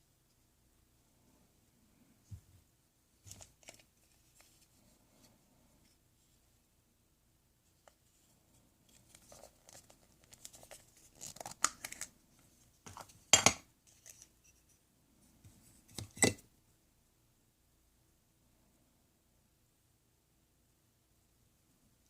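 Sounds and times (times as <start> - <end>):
rustling and scraping: 2.1 - 6.6, 7.6 - 13.3.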